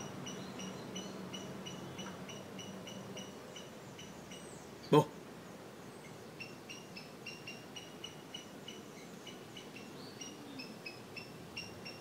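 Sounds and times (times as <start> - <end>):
small bird chirping: 0.0 - 5.0.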